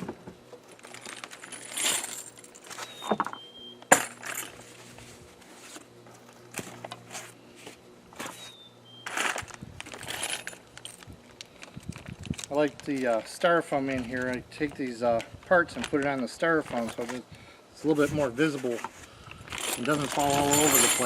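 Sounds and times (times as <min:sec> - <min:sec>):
metal parts clinking: 0:00.7 - 0:04.7, 0:09.1 - 0:13.2, 0:19.3 - 0:21.0
plastic bag rustling: 0:08.2 - 0:14.3, 0:17.9 - 0:21.0.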